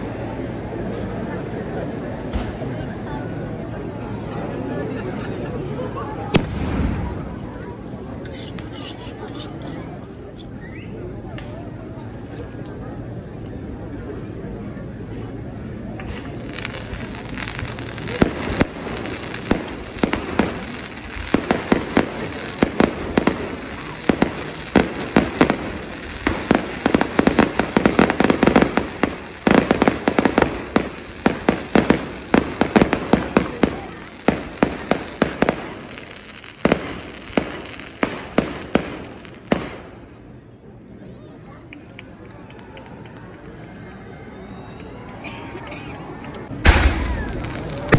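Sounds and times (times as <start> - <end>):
fireworks banging: 6.3 - 8.8, 15.9 - 40.2, 46.5 - 47.9.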